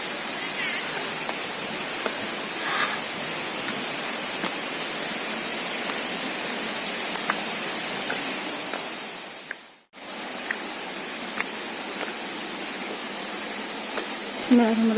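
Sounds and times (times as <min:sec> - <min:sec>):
mountain stream rushing: 0:00.0 - 0:09.4.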